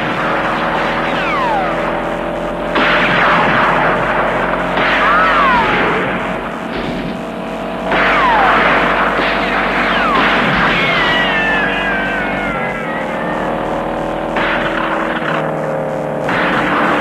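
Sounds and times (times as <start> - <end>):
car driving fast: 0.0 - 17.0
steady hum: 0.0 - 17.0
falling whistle-like tones: 1.0 - 2.0, 8.0 - 15.0.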